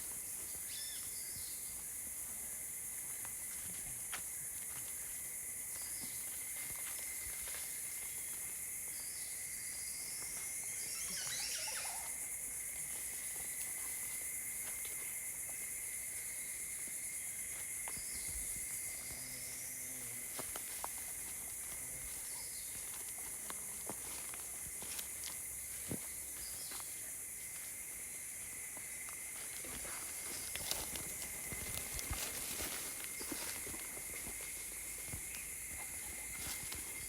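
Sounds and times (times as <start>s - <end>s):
insect chorus: 0.0s - 37.0s
bird calls: 10.8s - 12.1s.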